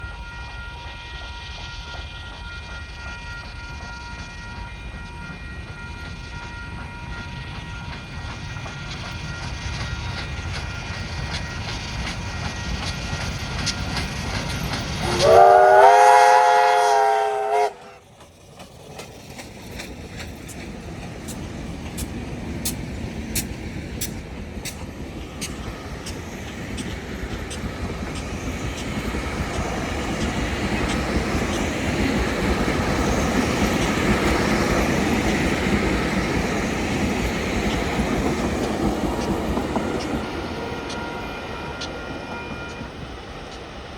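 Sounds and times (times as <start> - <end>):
train rumbling: 0.0 - 43.9
train horn warning chord: 15.0 - 18.0.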